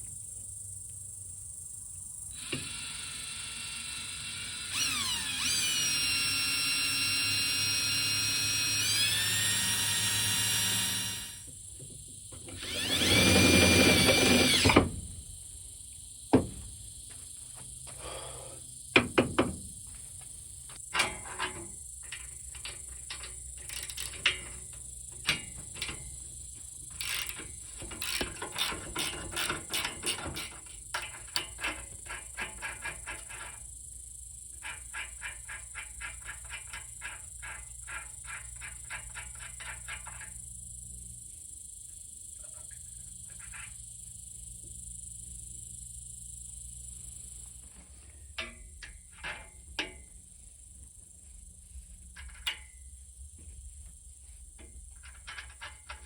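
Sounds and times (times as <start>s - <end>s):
power drill running: 2.4s - 11.5s, 12.5s - 14.9s
clicks and knocks of parts handled: 20.8s - 26.2s, 54.6s - 56.0s.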